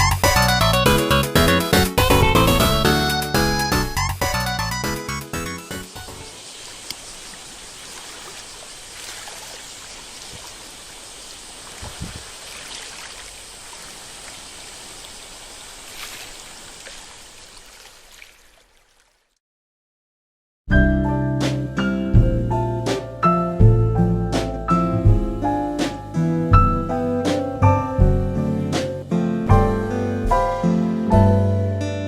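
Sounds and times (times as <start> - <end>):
seawater rushing and sloshing: 5.8 - 19.2.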